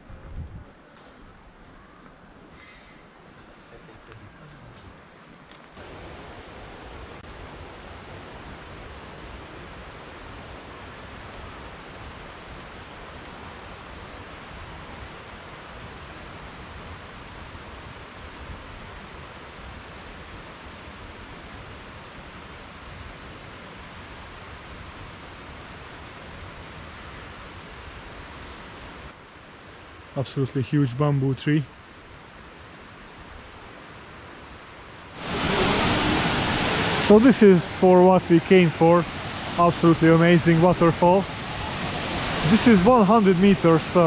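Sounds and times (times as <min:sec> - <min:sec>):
waterfall roaring: 0:05.8 - 0:11.8, 0:35.1 - 0:44.0.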